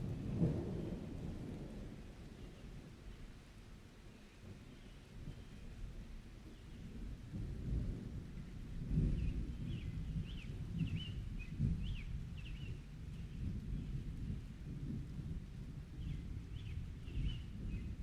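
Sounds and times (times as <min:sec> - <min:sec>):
rolling thunder: 0:00.0 - 0:02.2, 0:07.0 - 0:18.0
faint rain hiss: 0:00.0 - 0:18.0.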